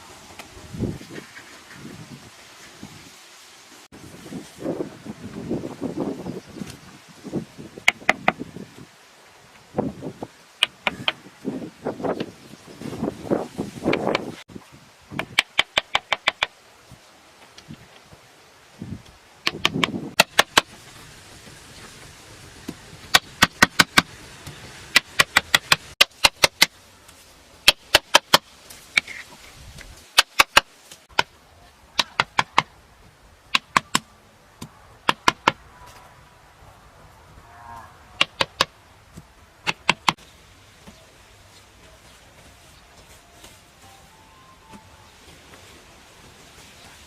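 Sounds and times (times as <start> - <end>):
sharp tapping knocks: 15.2 - 16.5, 19.4 - 20.7, 32.0 - 32.7, 33.5 - 34.0, 34.6 - 35.6, 38.2 - 40.2.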